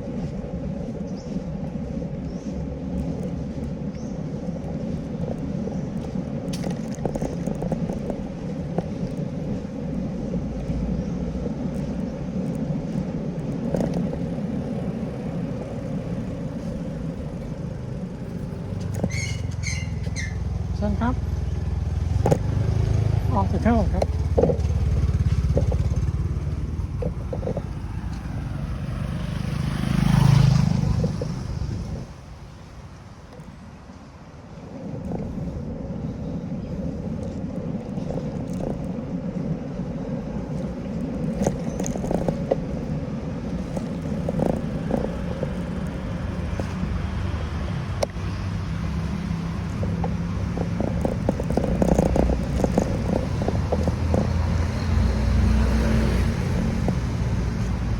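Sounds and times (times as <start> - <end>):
wind and tyre noise: 0.0 - 57.9
bicycle clicks and rattles: 2.9 - 9.6, 11.4 - 28.6, 34.7 - 57.9
small engine pulsing: 13.6 - 32.1, 40.6 - 57.9
motor passing by: 13.6 - 32.4, 40.7 - 57.9.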